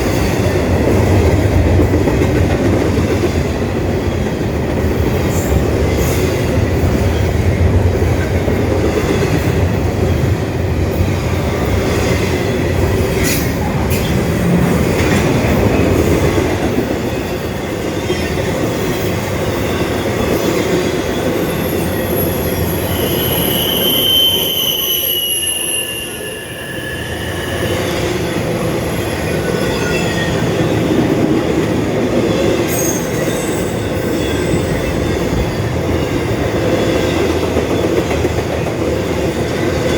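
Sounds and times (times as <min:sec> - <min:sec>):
freight train rumble and clatter: 0:00.0 - 0:39.9
train wheels squealing: 0:16.8 - 0:31.2, 0:32.3 - 0:38.1.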